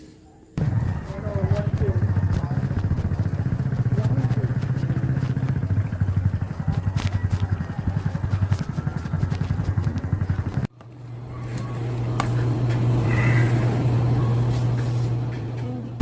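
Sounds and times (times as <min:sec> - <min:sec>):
steady engine drone: 0:00.2 - 0:16.0
engine pulsing beat: 0:00.6 - 0:10.7.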